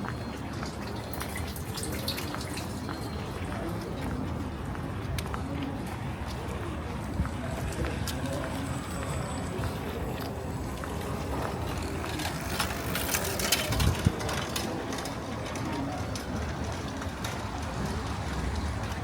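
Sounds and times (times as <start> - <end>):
low traffic rumble: 0.0 - 19.0.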